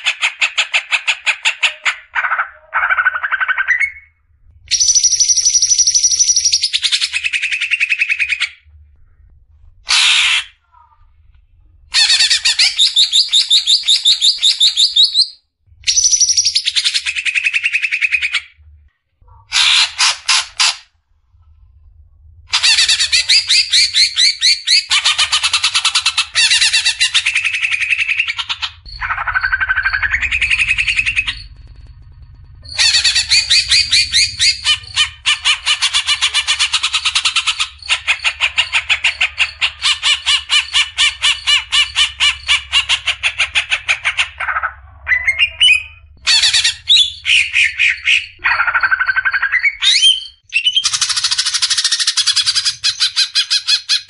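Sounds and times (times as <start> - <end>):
leafbird singing rapid notes: 32.6 - 38.3.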